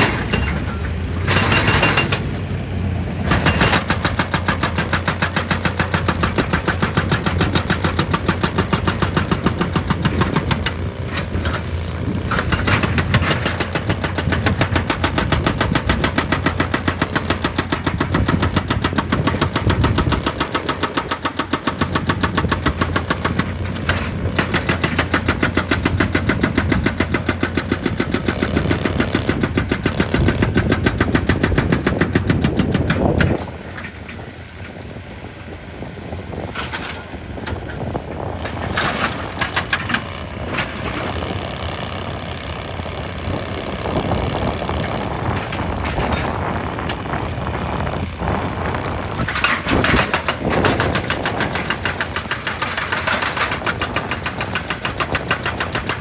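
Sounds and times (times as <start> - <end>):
excavator fast regular pounding: 0.0 - 34.9, 36.6 - 56.0
excavator engine running: 0.0 - 56.0
scattered knocks: 49.2 - 56.0.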